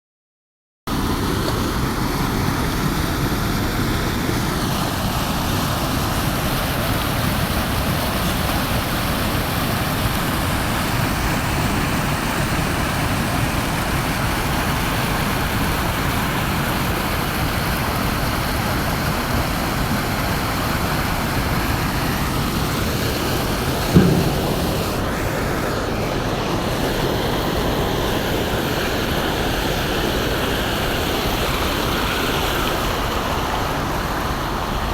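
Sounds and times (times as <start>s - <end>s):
low thud: 23.9s - 26.0s.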